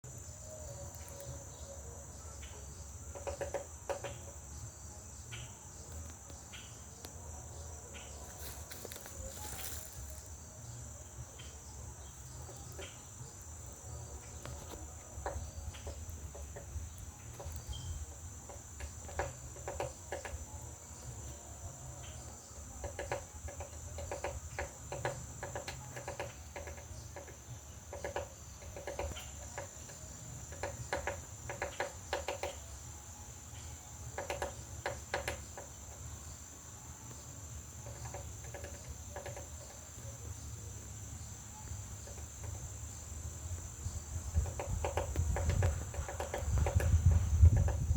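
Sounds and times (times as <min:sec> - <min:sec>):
crickets trilling: 0:00.0 - 0:47.9
woodpecker tapping on wood: 0:02.4 - 0:04.6, 0:08.0 - 0:10.3, 0:11.3 - 0:32.9, 0:33.5 - 0:36.2, 0:37.0 - 0:40.9, 0:41.7 - 0:47.9.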